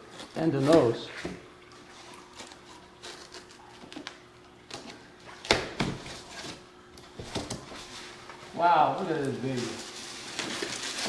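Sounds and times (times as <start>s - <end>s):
packing material rustling: 7.4s - 11.0s.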